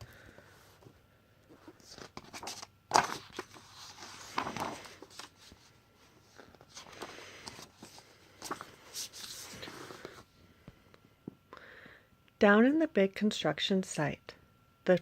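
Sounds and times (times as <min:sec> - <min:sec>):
paper pages rustling: 0:00.4 - 0:10.2.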